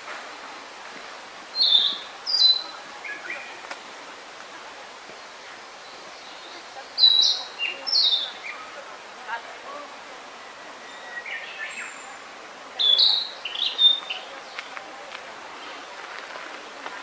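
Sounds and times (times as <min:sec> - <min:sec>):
steady background hiss: 0:00.0 - 0:17.0
bird singing whistled notes: 0:01.5 - 0:03.6, 0:06.2 - 0:08.7, 0:10.8 - 0:12.2, 0:12.8 - 0:14.6.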